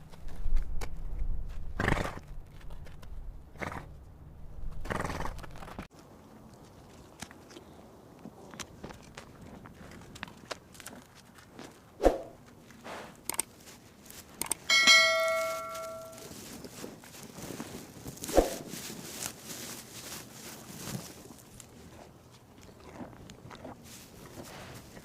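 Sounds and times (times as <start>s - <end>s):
bell-like metallic ring: 14.7s - 16.3s.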